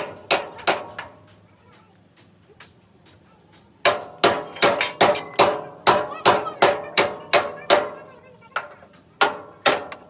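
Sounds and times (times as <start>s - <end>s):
hammer striking steel: 3.9s - 7.9s.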